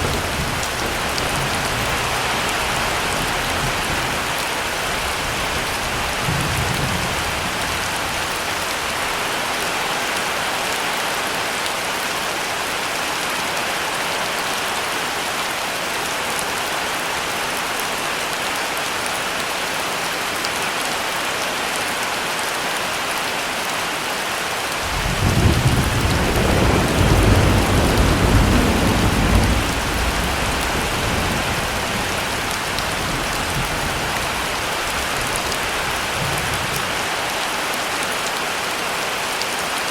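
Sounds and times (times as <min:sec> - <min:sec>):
thunder rumbling: 0:00.0 - 0:09.0, 0:24.8 - 0:37.1
heavy rain: 0:00.0 - 0:39.9.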